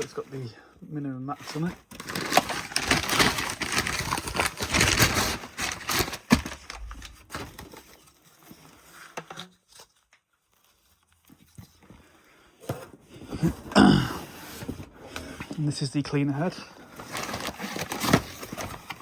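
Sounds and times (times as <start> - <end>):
packaging crinkling and rustling: 1.3 - 13.4, 16.4 - 19.0.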